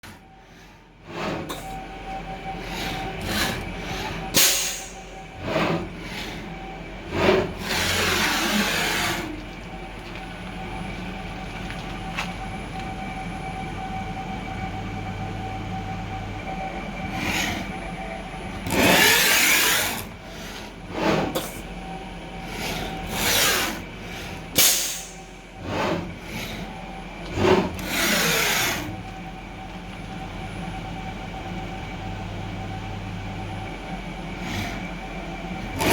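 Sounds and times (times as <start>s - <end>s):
steady machine whine: 0.0s - 35.9s
milling machine harsh rapid moves: 2.6s - 9.4s, 18.6s - 21.4s, 22.5s - 26.7s, 27.3s - 29.0s.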